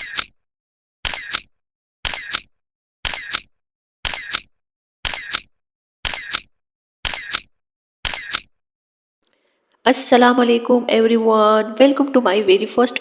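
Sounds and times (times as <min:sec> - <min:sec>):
camera shutter double click: 0:01.1 - 0:01.5, 0:02.1 - 0:02.5, 0:03.1 - 0:05.5, 0:06.1 - 0:08.5.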